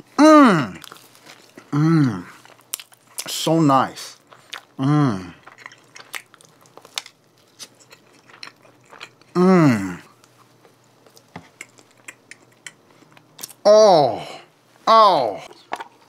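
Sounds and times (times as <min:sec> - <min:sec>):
close chewing with wet clicks: 0:02.4 - 0:03.3, 0:04.1 - 0:04.8, 0:05.4 - 0:09.4, 0:10.2 - 0:13.6.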